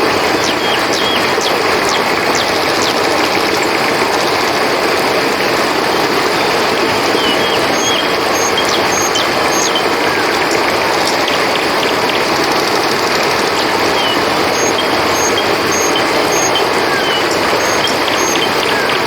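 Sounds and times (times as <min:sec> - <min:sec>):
river water flowing: 0:00.0 - 0:19.0.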